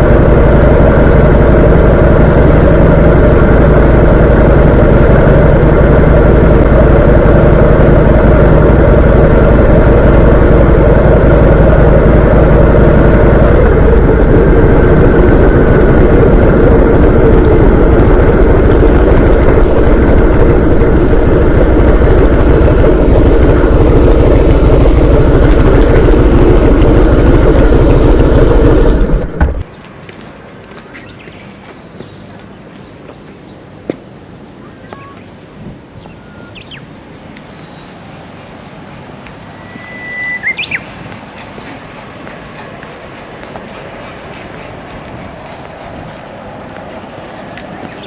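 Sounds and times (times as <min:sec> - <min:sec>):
vehicle engine rumbling: 0:00.0 - 0:29.9, 0:40.5 - 0:48.0.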